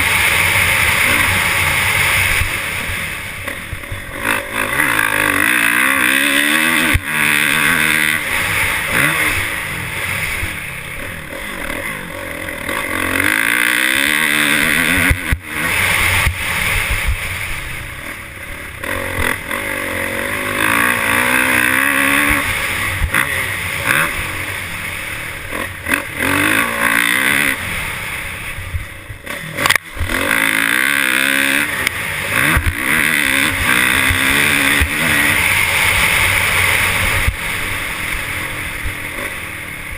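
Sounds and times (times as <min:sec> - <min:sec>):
loud rushing noise: 0:00.0 - 0:13.0
dirt bike engine revving: 0:00.0 - 0:39.9.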